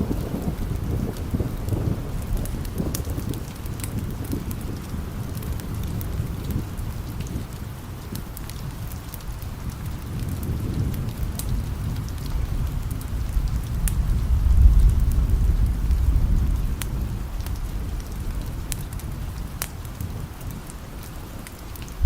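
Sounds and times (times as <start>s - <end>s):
steady rain: 0.0s - 22.0s
distant thunder rolling: 9.4s - 20.3s.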